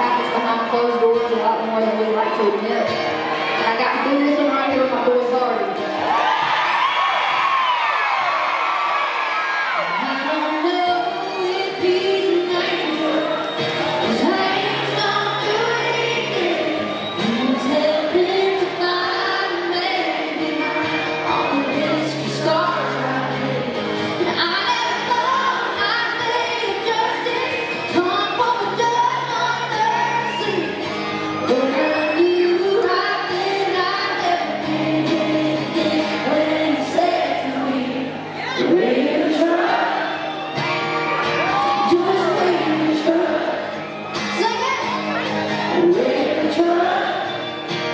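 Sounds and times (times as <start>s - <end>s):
country band playing: 0.0s - 47.9s
lead vocal singing: 9.8s - 40.6s, 41.5s - 44.1s, 45.6s - 47.6s.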